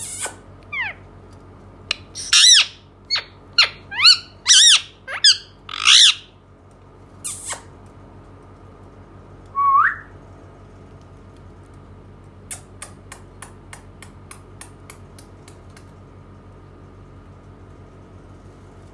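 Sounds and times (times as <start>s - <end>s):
parakeet squawking: 0.0s - 1.0s, 1.9s - 6.3s
rising whistle: 9.6s - 10.1s.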